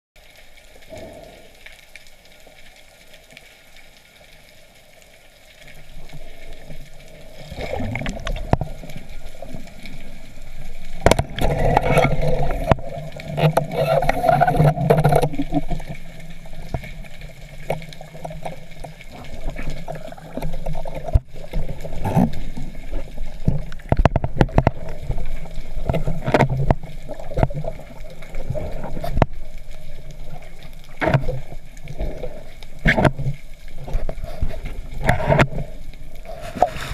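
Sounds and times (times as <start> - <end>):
water sloshing and gurgling: 0.2 - 36.9
sharp clicks and knocks: 11.0 - 15.8, 23.4 - 25.1.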